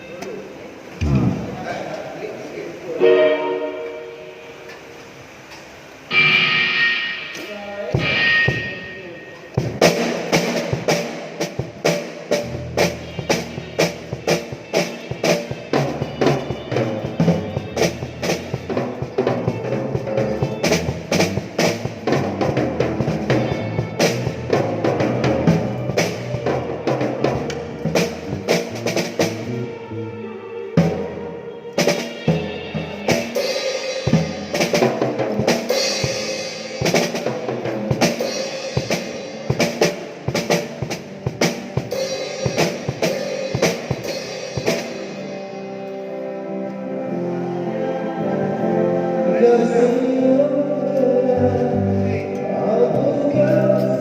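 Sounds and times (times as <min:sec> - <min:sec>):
bass line: 0:00.9 - 0:01.8, 0:12.3 - 0:14.7, 0:15.6 - 0:31.3
drum kit playing beat: 0:06.1 - 0:29.7, 0:31.8 - 0:45.7.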